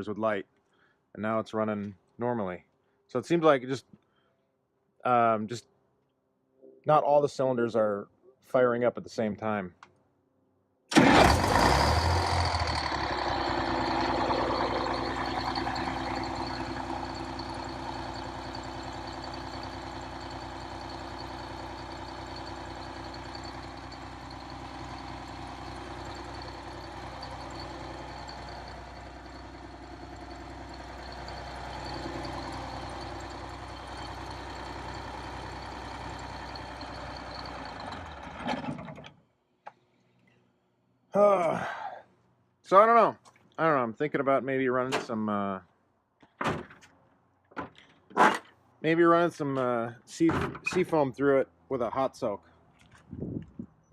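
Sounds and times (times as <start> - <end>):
diesel coach engine idling: 10.9 - 38.3.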